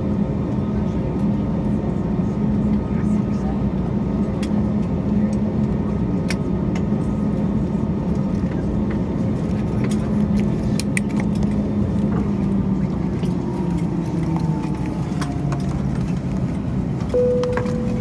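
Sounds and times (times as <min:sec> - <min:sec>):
aircraft cabin hum: 0:13.4 - 0:18.0
engine tones falling in pitch: 0:17.2 - 0:18.0
single clear tone: 0:17.2 - 0:18.0.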